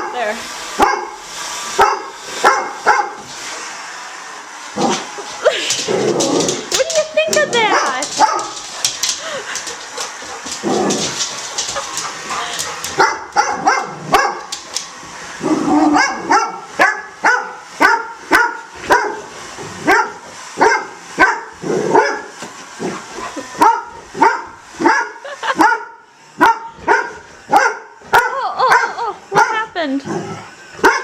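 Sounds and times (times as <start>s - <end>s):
dog barking: 0.8s - 1.2s, 1.8s - 3.2s, 7.7s - 8.9s, 13.0s - 14.5s, 15.9s - 22.3s, 23.6s - 29.6s, 30.8s - 31.0s.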